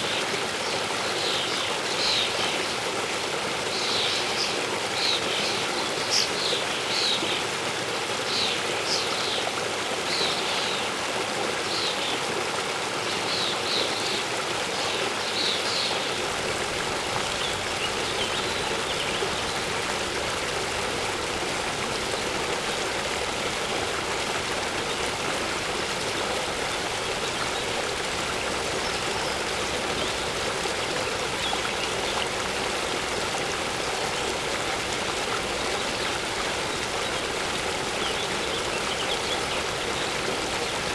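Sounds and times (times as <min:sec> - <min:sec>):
waterfall rushing: 0:16.0 - 0:40.9.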